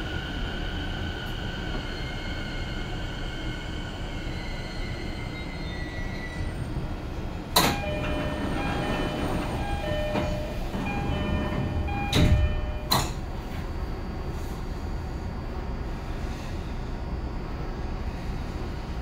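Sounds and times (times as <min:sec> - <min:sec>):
train running rumble: 0:06.1 - 0:19.0.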